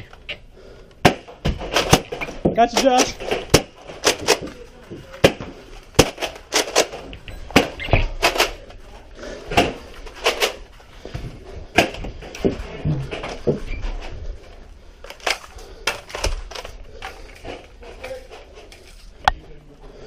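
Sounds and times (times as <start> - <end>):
foam balls hitting walls: 1.0 - 8.6, 9.4 - 13.7.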